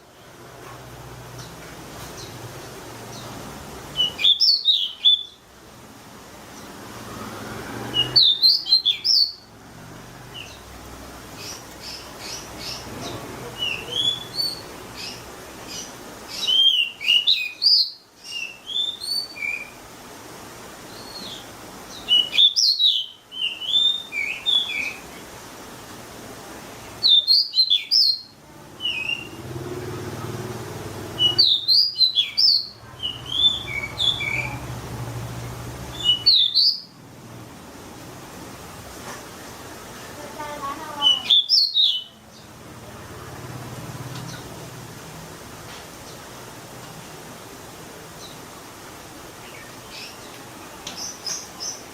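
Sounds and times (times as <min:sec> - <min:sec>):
songbird singing: 0:01.4 - 0:05.6, 0:06.4 - 0:09.6, 0:10.2 - 0:19.9, 0:20.7 - 0:25.4, 0:26.8 - 0:37.1, 0:40.2 - 0:44.7, 0:48.0 - 0:51.9.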